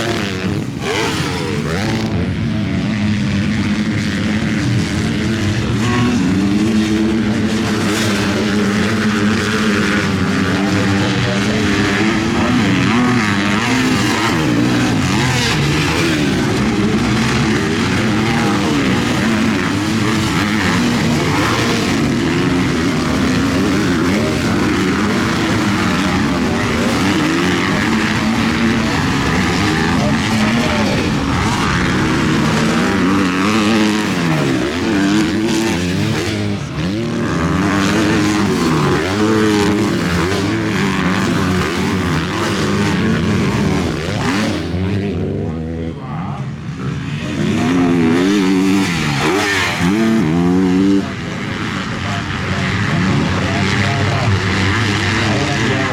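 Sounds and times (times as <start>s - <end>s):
motocross bike engines revving: 0.0s - 55.9s.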